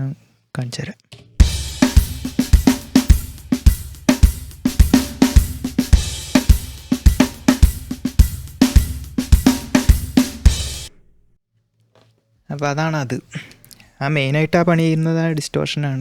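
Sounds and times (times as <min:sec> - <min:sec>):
drum kit playing a steady beat: 0:01.4 - 0:11.0.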